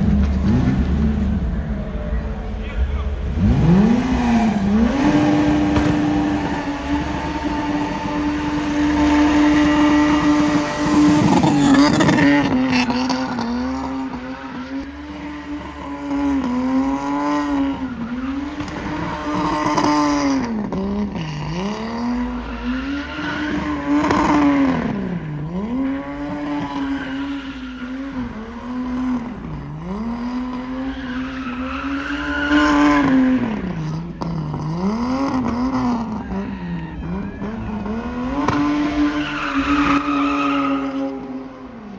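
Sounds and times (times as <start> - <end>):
car engine revving: 0.0 - 41.9
tyre squeal: 21.2 - 28.6, 30.4 - 33.9, 34.7 - 41.4.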